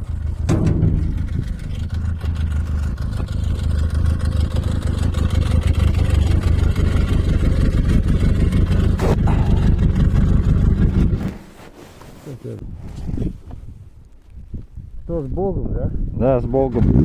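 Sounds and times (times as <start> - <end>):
snowmobile engine running: 0.0 - 12.6.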